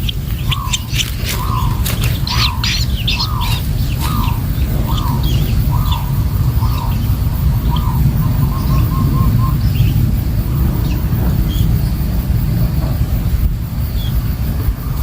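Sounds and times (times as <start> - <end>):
shrike calls: 0.0 - 10.1
higher bird chirps: 0.0 - 12.1
loud low rumble: 0.0 - 15.0.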